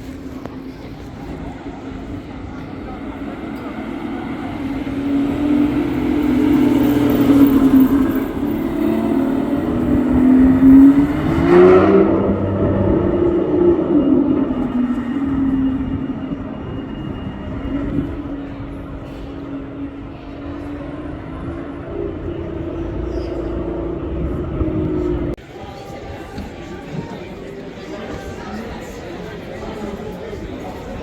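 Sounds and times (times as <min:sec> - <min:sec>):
car engine revving past: 0:02.7 - 0:17.0.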